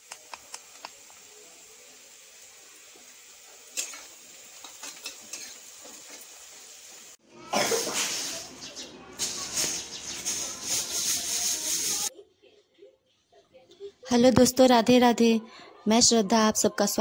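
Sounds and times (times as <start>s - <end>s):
food sizzling in a wok: 0.0s - 12.1s
spatula scraping a pan: 3.5s - 7.0s, 9.2s - 12.1s.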